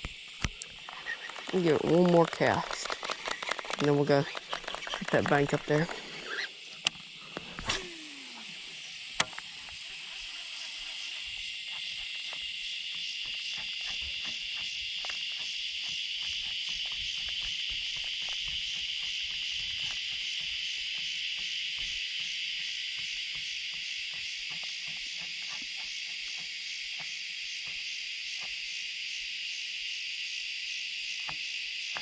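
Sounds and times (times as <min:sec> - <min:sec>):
insects buzzing: 0:00.0 - 0:32.0
short falling sound: 0:07.6 - 0:08.8.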